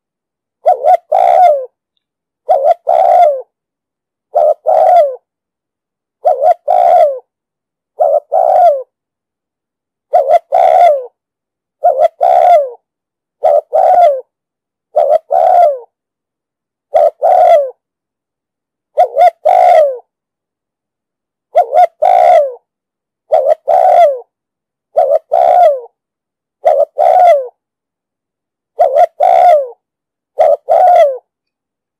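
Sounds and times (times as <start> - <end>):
dove cooing: 0.6 - 1.8, 2.4 - 3.5, 4.3 - 5.3, 6.2 - 7.3, 8.0 - 9.0, 10.1 - 11.2, 11.8 - 12.8, 13.4 - 14.3, 14.9 - 16.0, 16.9 - 17.8, 19.0 - 20.1, 21.5 - 22.7, 23.3 - 24.3, 24.9 - 26.0, 26.6 - 27.6, 28.8 - 31.3.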